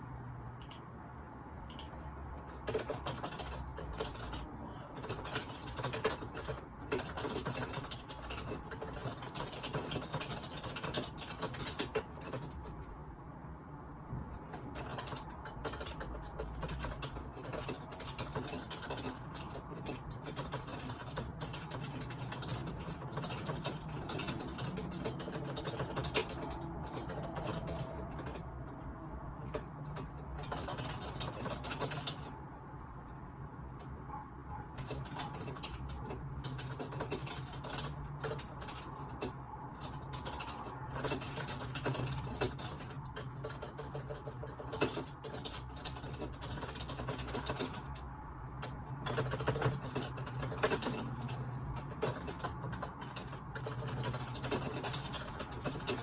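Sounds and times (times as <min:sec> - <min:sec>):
low background hum: 0:00.0 - 0:56.0
keyboard key clicks: 0:01.7 - 0:04.3.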